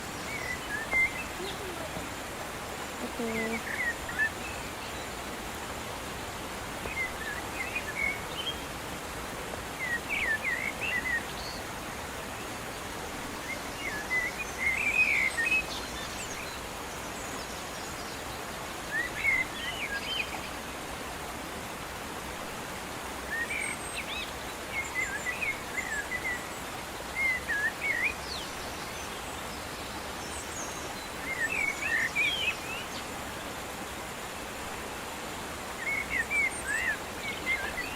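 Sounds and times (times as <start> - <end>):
birds chirping: 0.0 - 5.8
steady outdoor hiss: 0.0 - 37.9.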